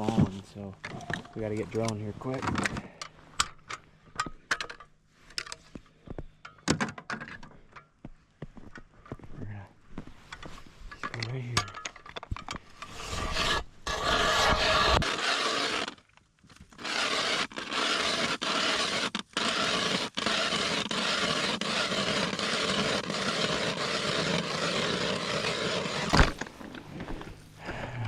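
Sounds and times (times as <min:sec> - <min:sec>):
ice auger grinding through ice: 0:12.8 - 0:28.0.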